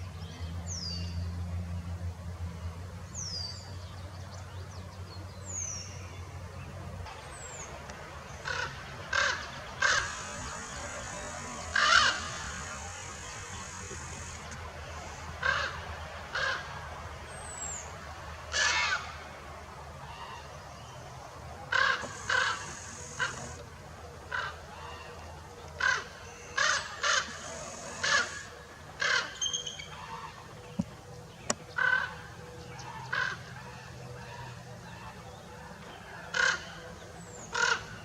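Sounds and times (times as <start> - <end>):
crows cawing: 8.4 - 11.1, 11.7 - 12.9, 15.4 - 16.8, 18.5 - 19.1, 21.7 - 23.6, 24.3 - 25.2, 25.8 - 27.4, 28.0 - 29.4, 31.7 - 32.3, 32.9 - 34.6, 36.2 - 36.8, 37.5 - 38.0.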